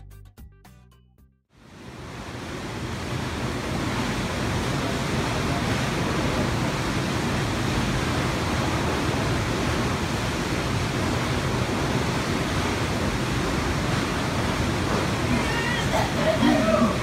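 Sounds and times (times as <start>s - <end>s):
water rushing in a gorge: 1.6s - 17.0s.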